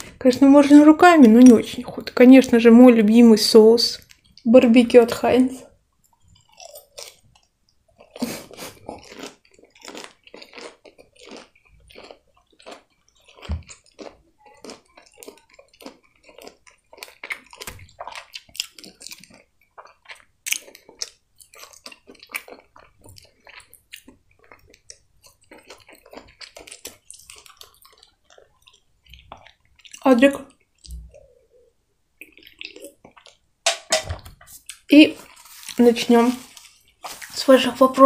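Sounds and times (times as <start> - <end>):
person chewing fried food: 4.0 - 4.5, 6.0 - 33.5, 34.4 - 37.4.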